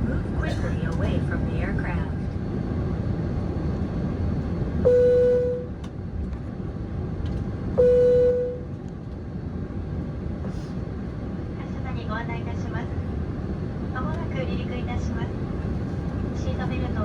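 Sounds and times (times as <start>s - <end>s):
low cabin rumble: 0.0s - 17.0s
single-tone cabin chime: 4.9s - 5.7s, 7.8s - 8.7s.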